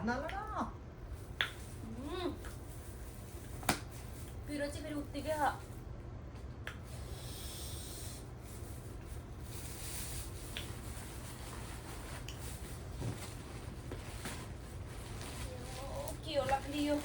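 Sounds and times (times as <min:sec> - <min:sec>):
steady low hum: 0:00.0 - 0:17.0
plastic packets rustling: 0:11.5 - 0:17.0.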